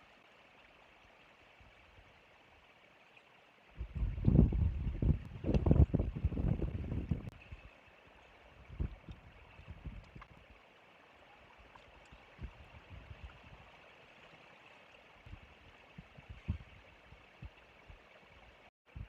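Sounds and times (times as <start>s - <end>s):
wind on microphone: 3.8s - 7.7s, 8.6s - 10.4s, 12.1s - 13.8s, 15.2s - 18.0s.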